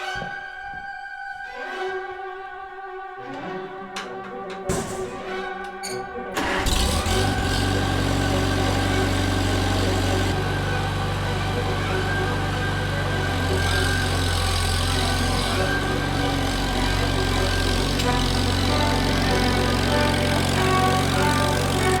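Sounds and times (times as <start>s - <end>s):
violin music: 0.0s - 22.0s
tractor engine starting and idling: 4.4s - 22.0s.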